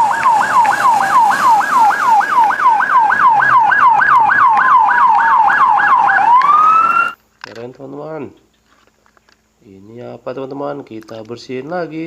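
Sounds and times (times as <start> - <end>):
police siren yelping: 0.0 - 7.2.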